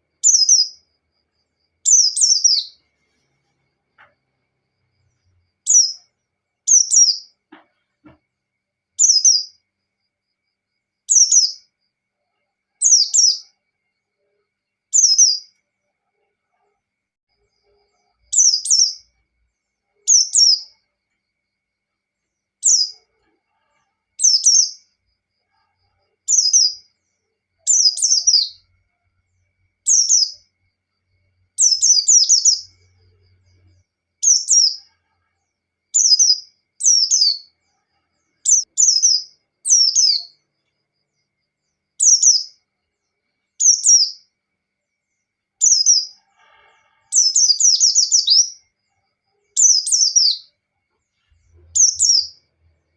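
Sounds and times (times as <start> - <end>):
bird high chirps: 0.0 - 0.9, 1.8 - 3.2, 5.3 - 8.2, 9.0 - 9.6, 11.1 - 11.7, 12.8 - 13.6, 14.9 - 15.6, 17.5 - 19.2, 19.9 - 20.8, 22.6 - 25.0, 26.2 - 27.0, 27.6 - 28.7, 29.8 - 30.5, 31.6 - 34.9, 35.9 - 37.6, 38.2 - 40.5, 42.0 - 42.6, 43.6 - 44.3, 45.6 - 46.2, 47.0 - 48.7, 49.5 - 50.5, 51.1 - 52.6.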